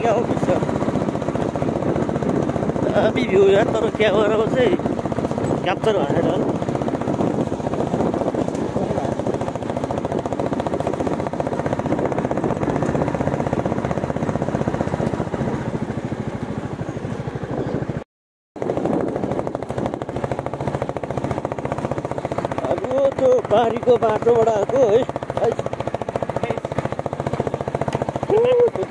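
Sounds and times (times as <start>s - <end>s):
motorcycle engine thumping: 0.0s - 18.0s, 18.6s - 28.9s.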